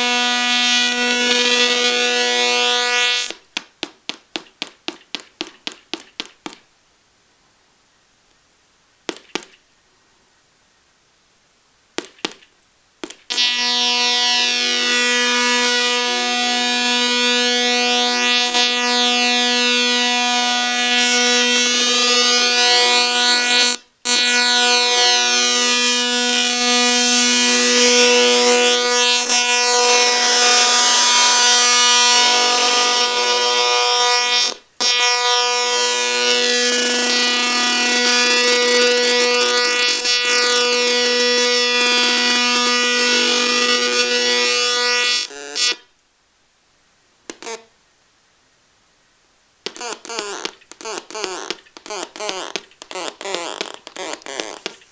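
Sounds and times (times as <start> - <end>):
buzzy electronic tone: 0.0 - 3.3, 13.3 - 45.8, 49.7 - 54.8.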